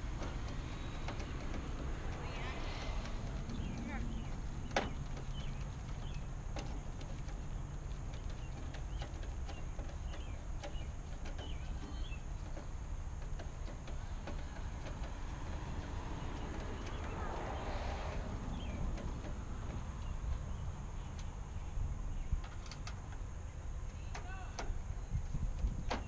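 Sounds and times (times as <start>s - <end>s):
low rumble: 0.0s - 8.1s
light clicks and taps: 0.1s - 21.4s, 22.3s - 26.0s.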